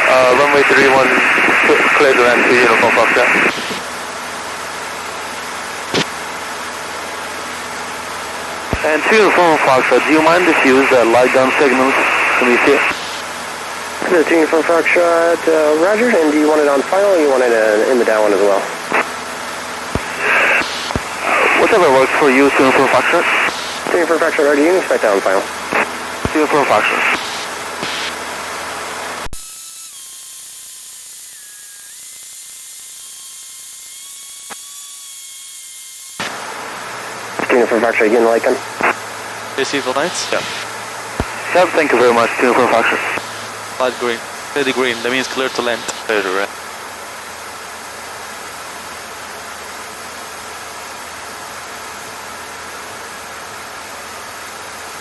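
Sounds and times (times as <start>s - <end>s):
aircraft cabin engine noise: 0.0s - 29.5s, 36.2s - 46.5s.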